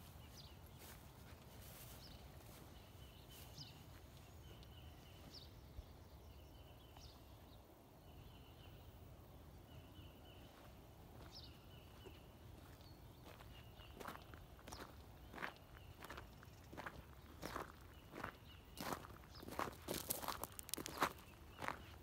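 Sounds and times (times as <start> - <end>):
bird chirps: 9.6 - 22.0.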